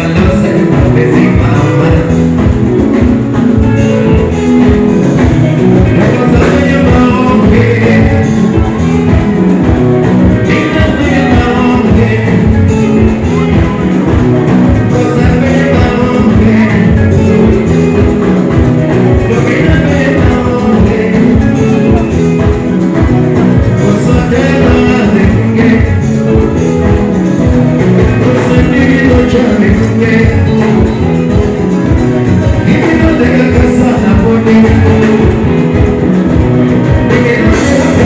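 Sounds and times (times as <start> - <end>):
live band music over loudspeakers: 0.0 - 38.0
person singing: 0.0 - 38.0.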